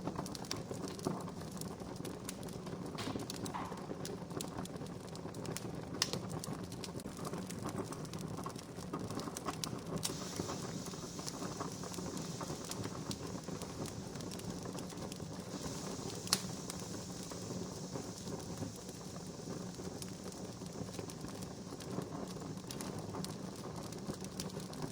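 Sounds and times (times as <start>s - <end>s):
campfire crackling: 0.0s - 24.9s
sharp fire snaps: 0.0s - 24.9s
soft hiss: 10.0s - 24.3s.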